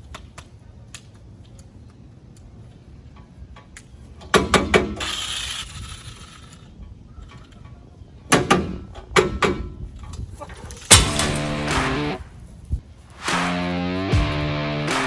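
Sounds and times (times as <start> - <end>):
sharp metallic clicks and rattles: 10.1 - 12.2.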